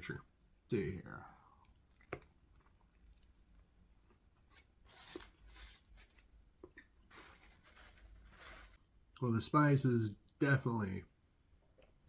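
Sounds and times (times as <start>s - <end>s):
person chewing food: 1.6s - 7.2s.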